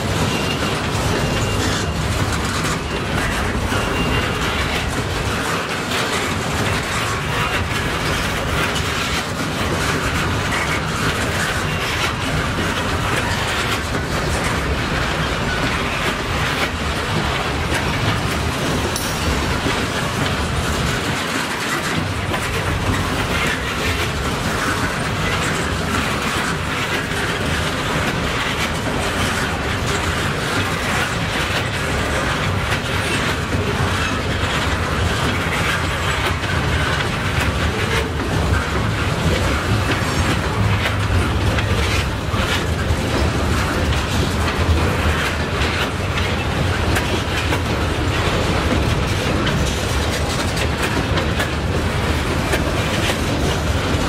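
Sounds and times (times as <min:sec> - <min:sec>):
freight train rolling past: 0:00.0 - 0:54.0
wheels clacking over rails: 0:00.0 - 0:54.0.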